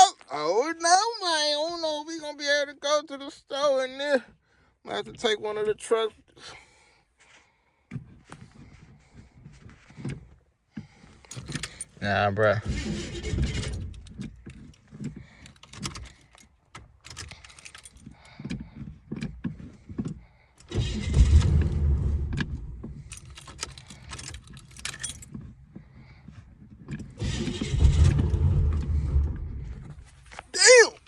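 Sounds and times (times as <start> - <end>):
car starter cranking: 11.0 - 30.4
keys jangling at ignition: 11.2 - 12.0, 13.6 - 18.6, 23.0 - 25.6.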